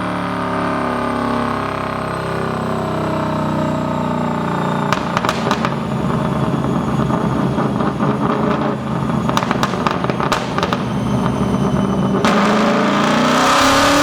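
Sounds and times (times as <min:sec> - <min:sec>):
car engine running rough: 0:00.0 - 0:14.0
exhaust crackling and popping: 0:04.8 - 0:14.0.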